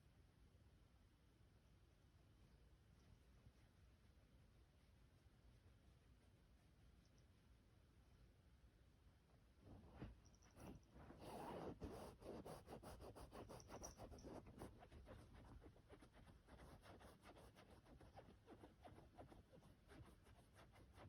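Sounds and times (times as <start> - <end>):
scratching and rustling on fabric: 9.6 - 21.0.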